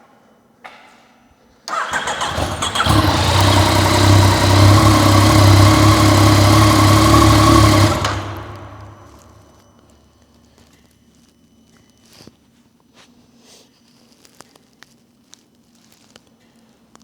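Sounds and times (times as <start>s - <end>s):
motorcycle engine starting and idling: 1.7s - 9.7s.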